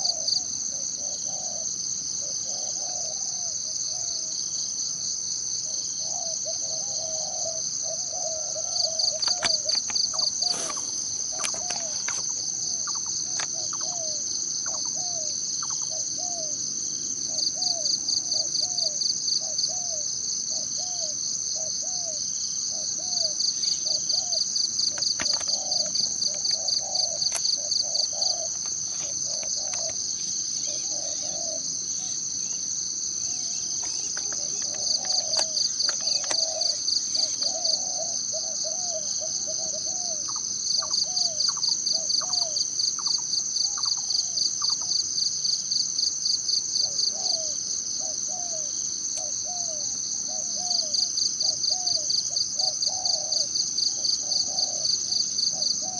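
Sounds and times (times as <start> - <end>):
high-pitched insect drone: 0.0 - 55.9
pulsing insect trill: 0.0 - 55.9.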